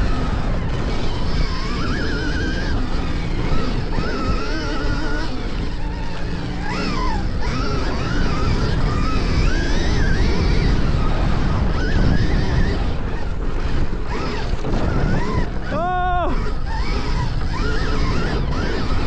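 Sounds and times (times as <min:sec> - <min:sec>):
electric motorbike motor whining: 0:00.0 - 0:19.0
wind and tyre noise: 0:00.0 - 0:19.0.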